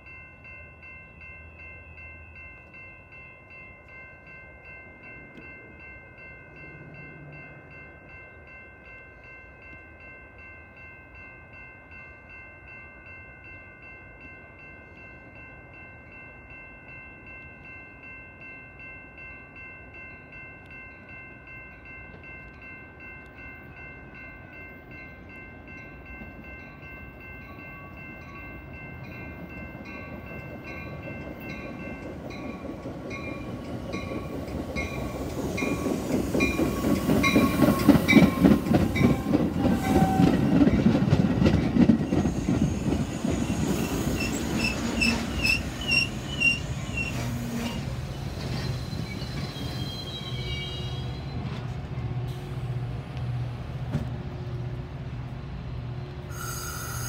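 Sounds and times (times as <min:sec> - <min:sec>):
crossing bell ringing: 0:00.0 - 0:53.1
train wheels clattering over rails: 0:29.4 - 0:50.1
train horn chord: 0:36.7 - 0:40.5.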